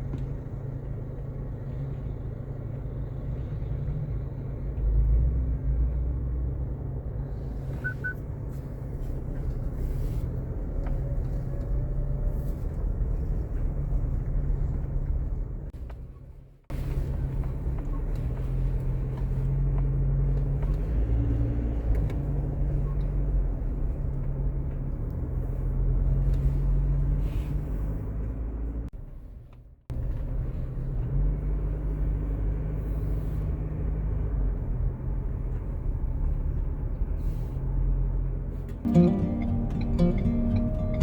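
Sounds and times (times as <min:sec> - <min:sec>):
vehicle engine rumbling: 0:00.0 - 0:41.0.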